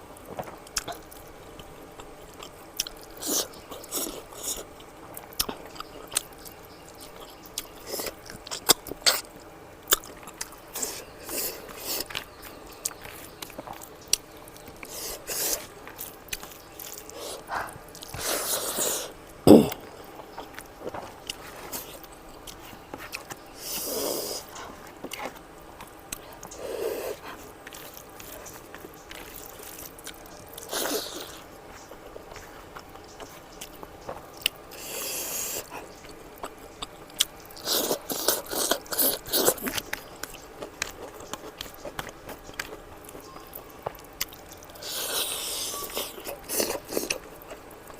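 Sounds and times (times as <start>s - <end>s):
chewing: 0.0s - 47.9s
noisy breaths or sniffs: 17.1s - 19.8s.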